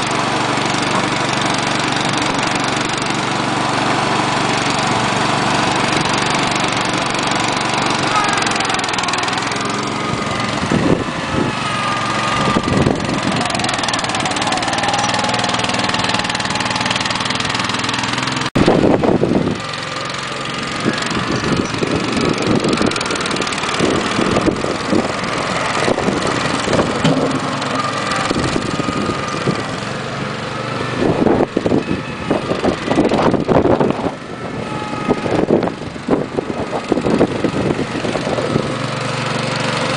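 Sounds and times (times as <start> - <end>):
small tractor engine running: 0.0 - 39.9
low thumps and rumbles: 25.8 - 29.6.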